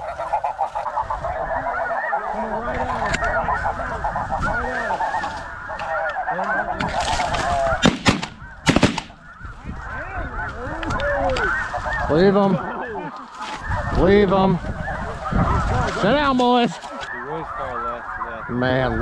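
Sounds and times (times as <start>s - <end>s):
geese honking: 0.0s - 19.0s
sharp cracks: 6.8s - 9.2s.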